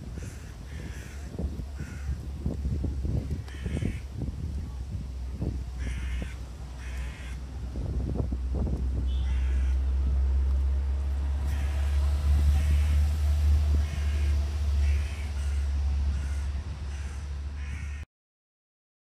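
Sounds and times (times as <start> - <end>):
low rumble: 0.0 - 18.0
bird harsh calls: 0.1 - 2.2, 3.5 - 4.1, 5.8 - 7.4, 9.1 - 10.0, 11.4 - 13.1, 13.7 - 18.0.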